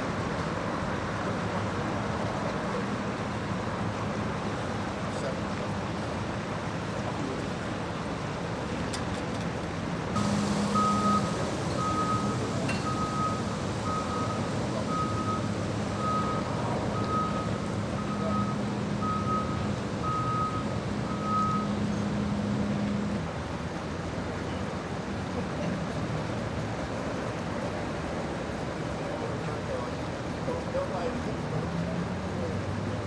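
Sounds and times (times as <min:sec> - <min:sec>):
background noise: 0:00.0 - 0:33.0
engine hum: 0:00.0 - 0:33.0
truck reversing alarm beeping: 0:10.2 - 0:22.1.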